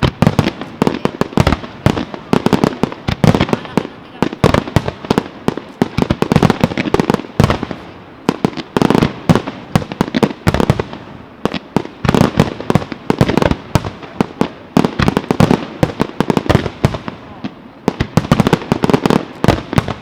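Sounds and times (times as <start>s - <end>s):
fireworks bursts and bangs: 0.0s - 20.0s.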